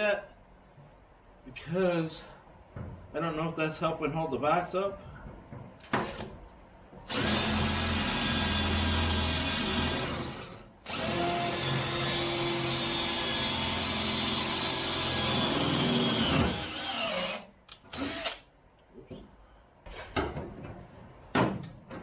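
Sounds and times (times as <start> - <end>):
power tool motor whining: 7.1 - 18.4.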